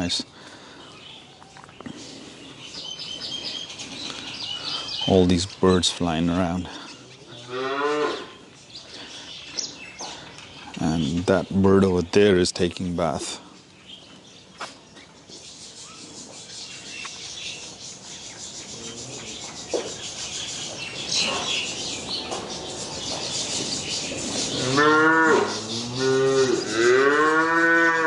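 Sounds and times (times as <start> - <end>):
cow mooing: 7.5 - 8.3, 24.6 - 28.0.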